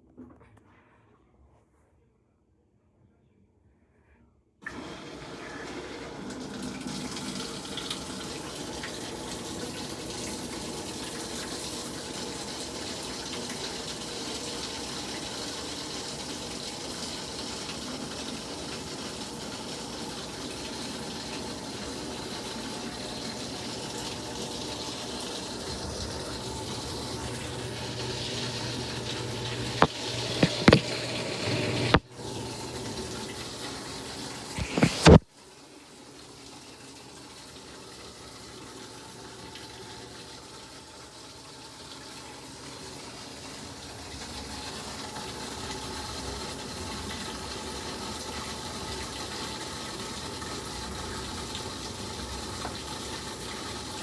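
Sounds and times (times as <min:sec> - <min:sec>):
water running into washing machine: 0:04.6 - 0:54.0.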